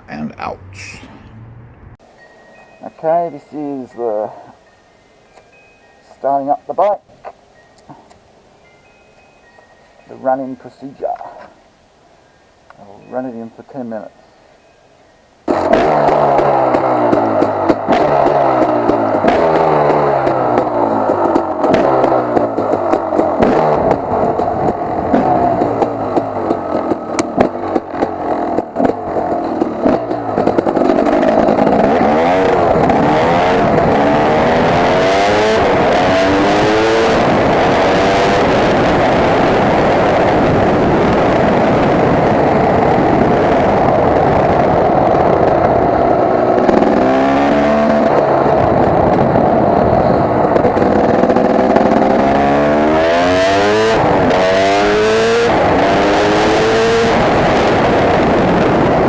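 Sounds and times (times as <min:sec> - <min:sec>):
dirt bike engine revving: 0:15.5 - 0:59.0.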